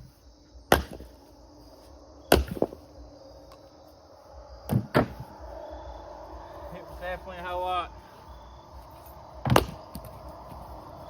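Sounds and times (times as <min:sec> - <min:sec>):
firewood splitting strikes: 0:00.7 - 0:01.2, 0:02.3 - 0:02.8, 0:04.7 - 0:05.2, 0:09.4 - 0:10.2.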